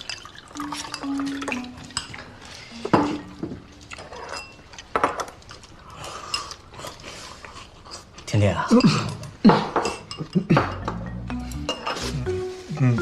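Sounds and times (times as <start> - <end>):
chopsticks and spoons tapping bowls: 0.6 - 5.4, 8.7 - 12.5.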